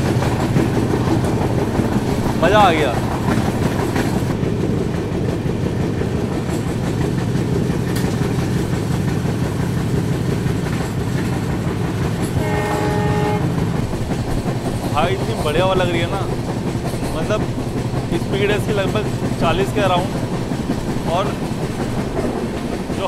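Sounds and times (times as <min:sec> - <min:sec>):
train wheels rumbling on rails: 0:00.0 - 0:23.0
train horn: 0:12.3 - 0:13.6.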